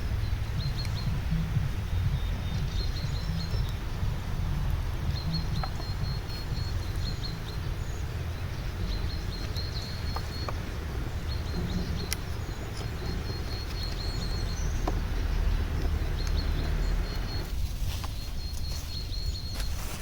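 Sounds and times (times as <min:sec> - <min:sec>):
bird trilling: 0:00.0 - 0:17.5
low outdoor rumble: 0:00.0 - 0:20.0
faint clicks: 0:11.4 - 0:18.7.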